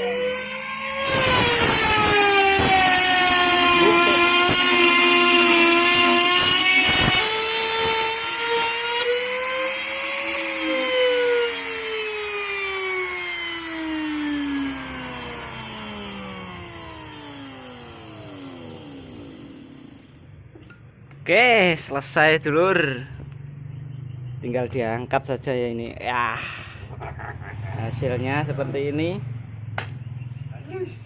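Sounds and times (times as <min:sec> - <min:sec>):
wood router motor whining: 0:00.0 - 0:20.4.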